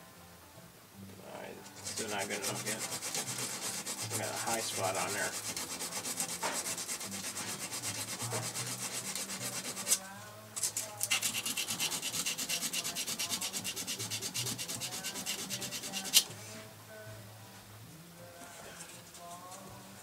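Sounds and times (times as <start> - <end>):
sandpaper scraping: 1.7 - 16.3.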